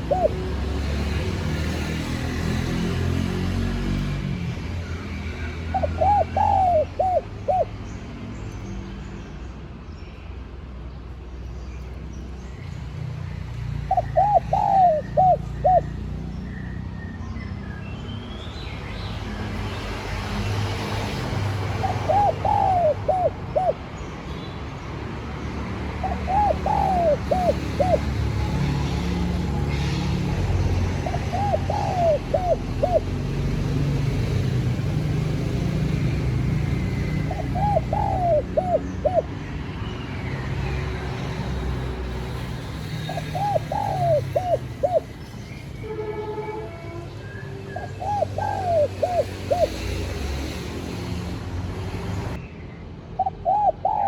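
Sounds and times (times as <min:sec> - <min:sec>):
dove cooing: 0:00.0 - 0:00.9, 0:05.7 - 0:07.7, 0:13.9 - 0:16.0, 0:21.6 - 0:23.9, 0:26.0 - 0:33.5, 0:36.8 - 0:39.4, 0:43.0 - 0:45.2, 0:47.8 - 0:50.0, 0:53.2 - 0:54.0.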